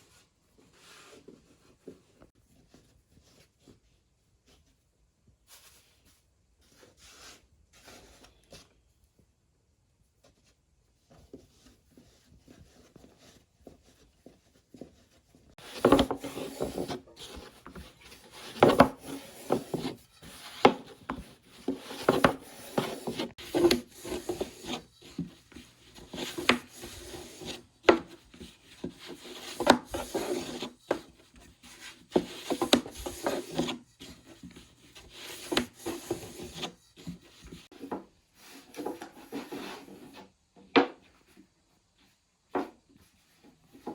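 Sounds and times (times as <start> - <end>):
rubbing and scraping on wood: 10.2 - 40.4.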